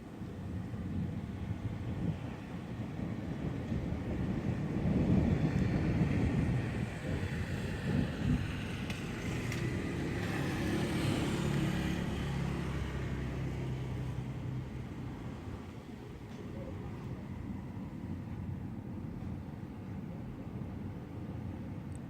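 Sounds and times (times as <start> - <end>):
passing vehicle engine hum: 5.2 - 18.1.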